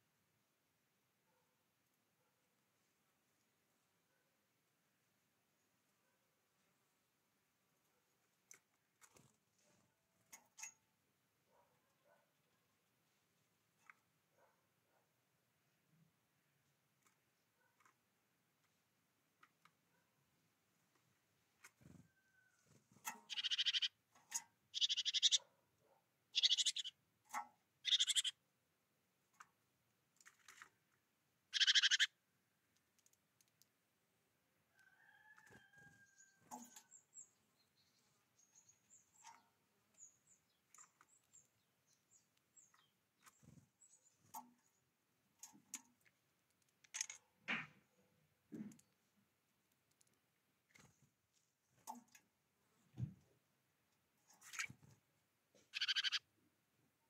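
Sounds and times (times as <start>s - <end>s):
faint high chirping: 21.8s - 24.0s, 24.7s - 25.5s, 26.3s - 27.0s, 27.8s - 28.4s, 35.1s - 44.8s, 55.6s - 56.3s
bird giving rasping calls: 23.3s - 24.0s, 24.7s - 25.4s, 26.4s - 27.0s, 27.8s - 28.4s, 31.5s - 32.1s, 55.7s - 56.2s.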